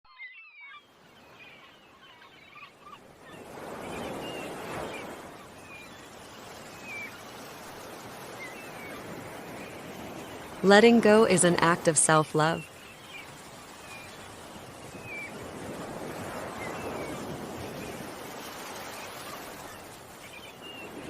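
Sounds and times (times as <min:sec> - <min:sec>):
small birds chirping: 0:00.1 - 0:10.6, 0:12.5 - 0:15.5, 0:18.7 - 0:21.0
ocean waves washing ashore: 0:00.9 - 0:21.0.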